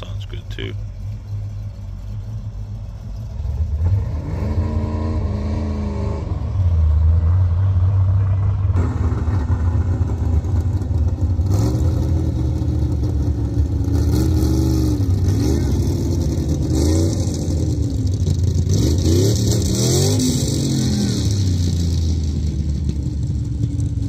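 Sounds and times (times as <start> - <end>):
car engine revving with deep rumble: 0.0 - 24.0.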